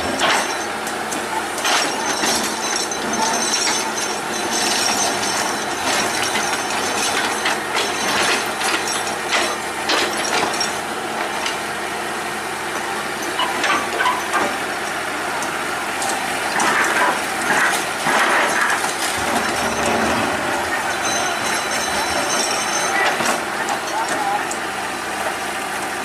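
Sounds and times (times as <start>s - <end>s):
excavator diesel engine: 0.0s - 26.0s
metallic scraping and clanking: 16.0s - 24.2s.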